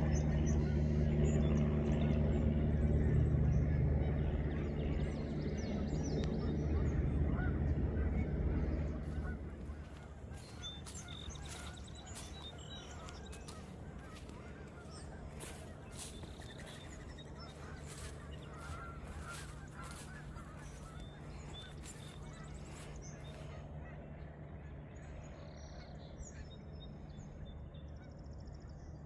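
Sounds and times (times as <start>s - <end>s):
low engine hum: 0.0s - 29.0s
geese honking: 5.6s - 24.0s.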